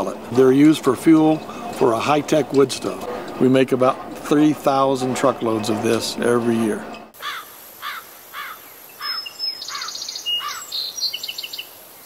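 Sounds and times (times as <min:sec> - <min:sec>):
birds chirping and trilling: 0:04.8 - 0:12.0
faint high hiss: 0:07.2 - 0:12.0.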